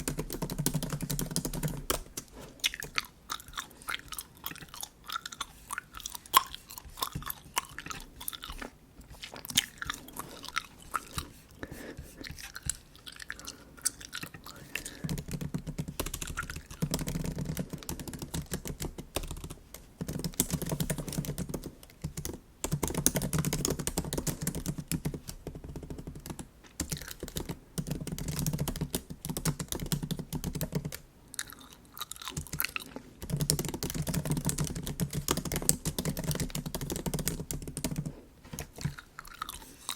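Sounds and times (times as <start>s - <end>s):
bubble gum chewing: 1.8s - 15.4s, 31.3s - 33.2s, 38.5s - 39.9s.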